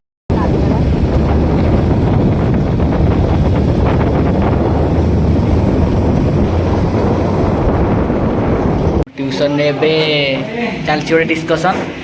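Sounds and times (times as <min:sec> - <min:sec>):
motorcycle engine running: 0:00.3 - 0:09.0
wind buffeting microphone: 0:00.3 - 0:09.1.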